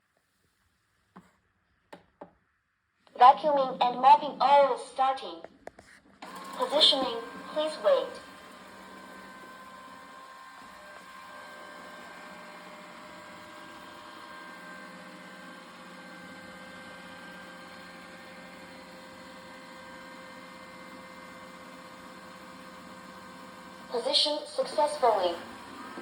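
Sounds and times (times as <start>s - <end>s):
robot vacuum motor humming: 6.2s - 26.0s.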